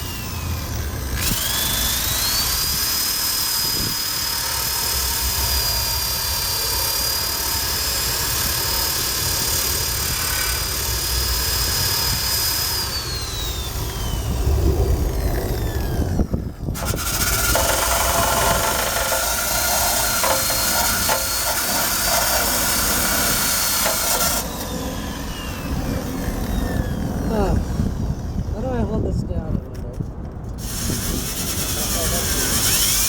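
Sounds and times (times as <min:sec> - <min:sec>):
drill wire brush scraping metal: 0:15.3 - 0:25.3, 0:30.6 - 0:33.0.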